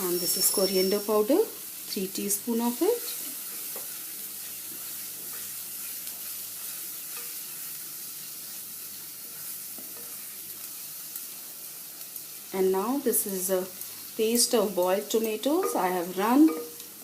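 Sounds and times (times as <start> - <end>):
spices sizzling in hot oil: 0.0 - 17.0
spoon knocking pan: 15.4 - 16.9.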